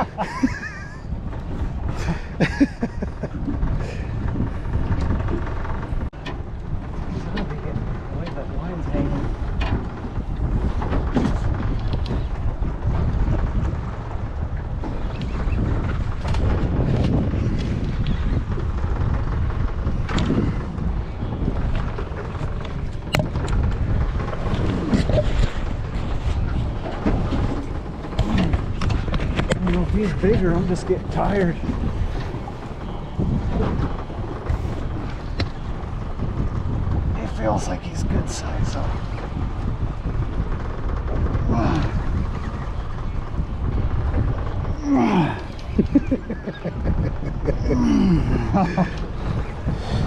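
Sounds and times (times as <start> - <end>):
boat low rumble: 0.0 - 50.0
wind buffeting microphone: 0.0 - 50.0
knocks and clicks: 21.7 - 25.6.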